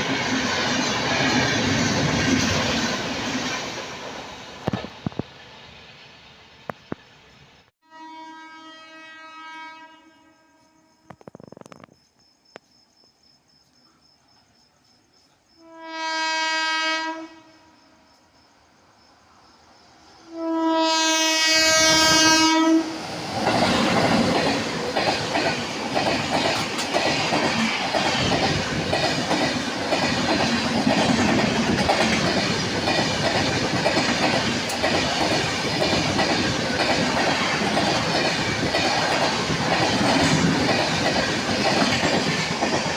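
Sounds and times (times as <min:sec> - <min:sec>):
train rushing past: 0:00.0 - 0:07.6, 0:18.6 - 0:42.9
train horn blasts: 0:07.8 - 0:11.1, 0:15.6 - 0:17.8, 0:20.2 - 0:23.0.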